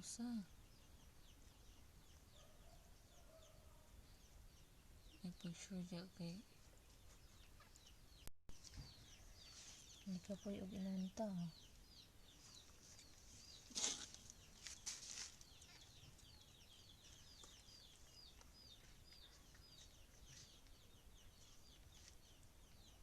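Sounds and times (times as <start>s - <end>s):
brief rustle: 13.0s - 15.4s.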